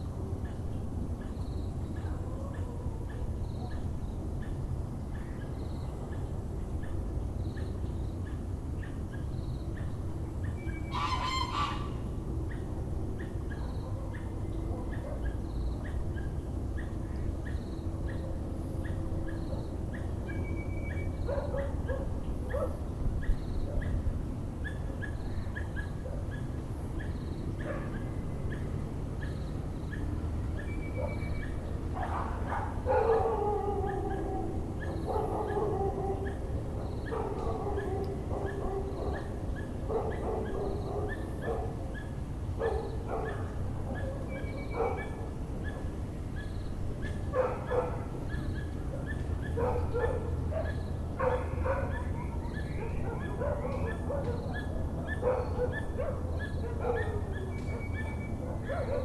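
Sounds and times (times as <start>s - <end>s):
geese honking: 10.9s - 12.0s.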